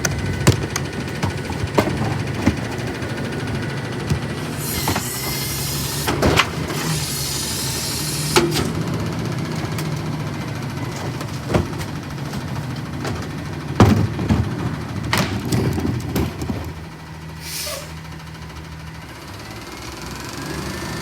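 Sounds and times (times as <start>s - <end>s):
garbage truck running: 0.0s - 21.0s
air hiss: 4.5s - 8.7s, 17.4s - 18.0s.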